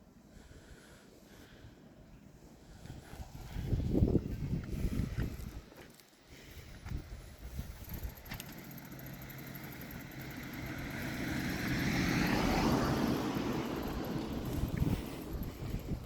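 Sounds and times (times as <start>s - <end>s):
vehicle driving past: 8.4s - 16.0s.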